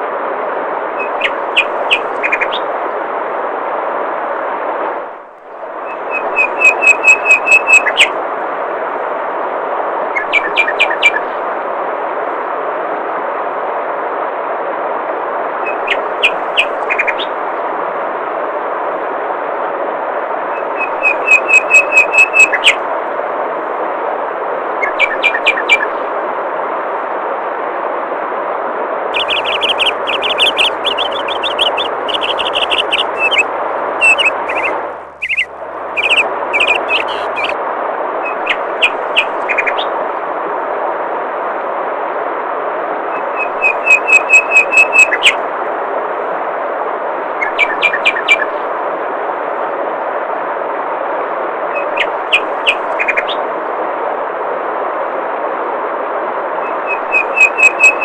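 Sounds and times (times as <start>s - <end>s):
small birds chirping: 1.0s - 2.7s, 29.2s - 37.6s.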